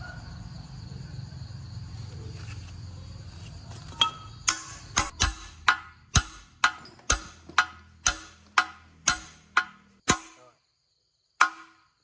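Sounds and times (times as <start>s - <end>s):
hammer blows: 3.9s - 10.4s, 11.4s - 11.9s.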